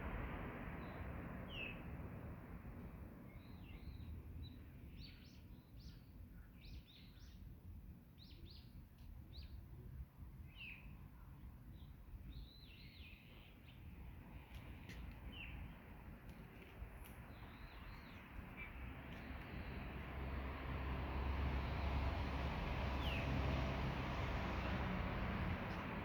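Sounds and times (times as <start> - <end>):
birds chirping: 17.1 - 20.1.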